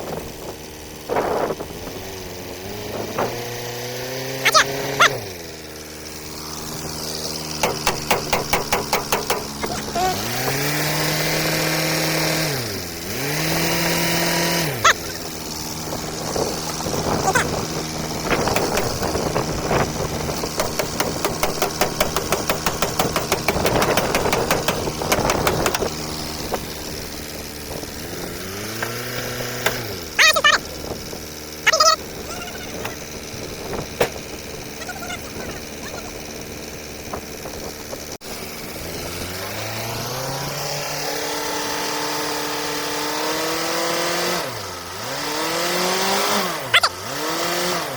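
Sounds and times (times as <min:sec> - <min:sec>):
power tool motor spinning: 0:00.0 - 0:47.9
rapid rattling strikes: 0:07.4 - 0:12.4, 0:13.3 - 0:30.6.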